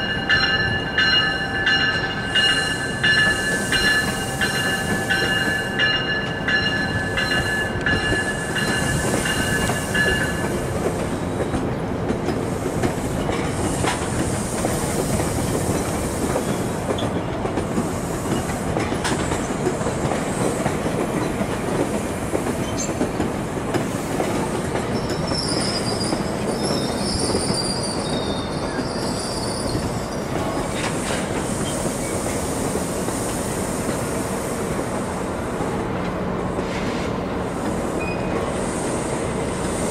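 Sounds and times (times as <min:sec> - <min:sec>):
steel wheels rumbling on rail: 0:00.0 - 0:39.9
high wheel squeal: 0:24.9 - 0:30.3, 0:38.0 - 0:38.5.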